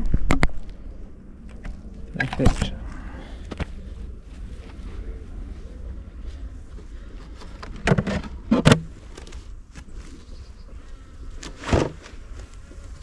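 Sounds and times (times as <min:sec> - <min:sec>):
honeybees buzzing: 0:05.1 - 0:13.0.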